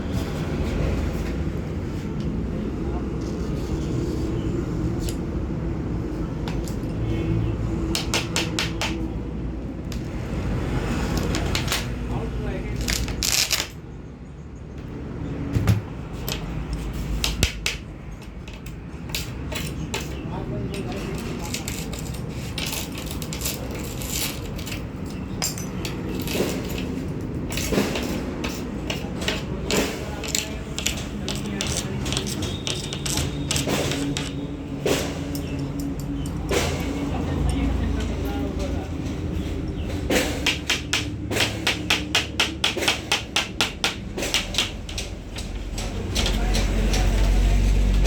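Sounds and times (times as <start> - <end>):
sharp hammer-like taps: 7.9 - 9.2, 40.1 - 45.1
hand tools scraping: 16.2 - 48.0.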